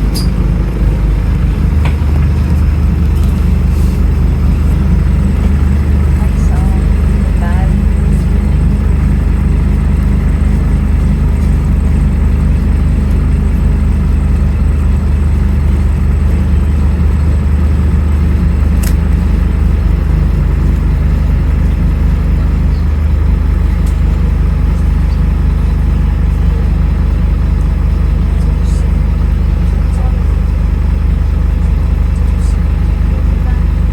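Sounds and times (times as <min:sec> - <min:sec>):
bus diesel engine running: 0:00.0 - 0:33.9.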